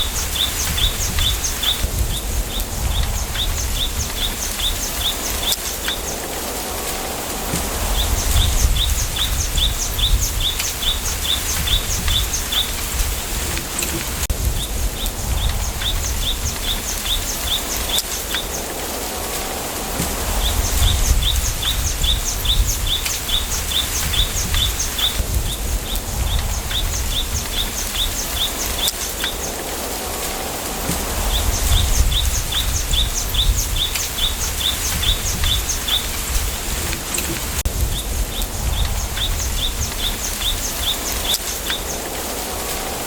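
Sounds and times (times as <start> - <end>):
low wind rumble: 0.0 - 43.0
wind through bamboo leaves: 0.0 - 43.0
bird chirping: 7.6 - 14.0.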